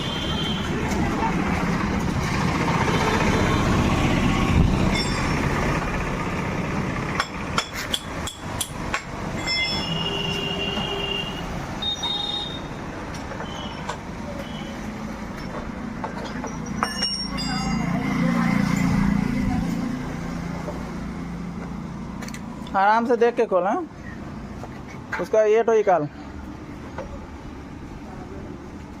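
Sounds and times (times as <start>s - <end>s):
sharp metallic clinks: 4.8s - 5.6s, 7.2s - 10.1s, 16.2s - 19.0s
high ringing tones: 4.9s - 5.6s, 9.3s - 12.8s, 16.4s - 18.3s.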